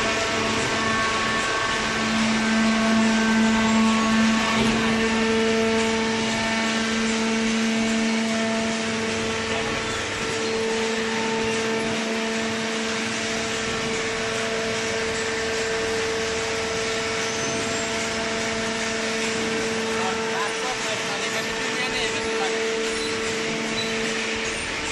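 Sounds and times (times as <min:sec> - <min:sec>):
broad mechanical noise: 0:00.0 - 0:24.9
machine hum: 0:00.0 - 0:24.9.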